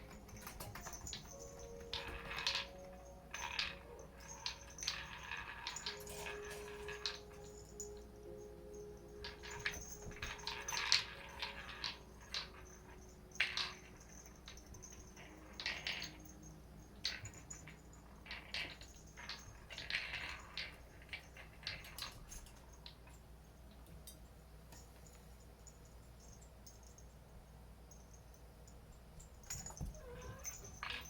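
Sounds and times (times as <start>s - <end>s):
cats rustling and scuffling: 0.0s - 7.9s, 29.2s - 31.0s
light clicks and clatters: 0.0s - 8.4s, 9.0s - 27.1s.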